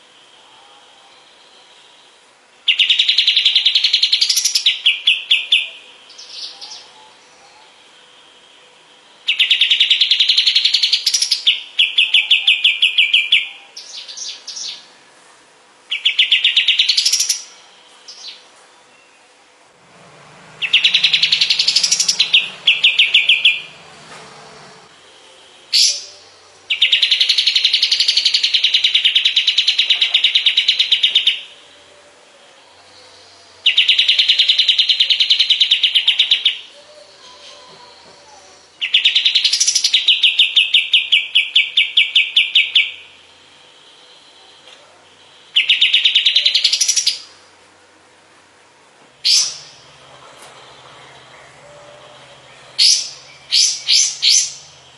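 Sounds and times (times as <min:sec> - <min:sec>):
songbird singing buzzy trills: 0:00.0 - 0:54.9.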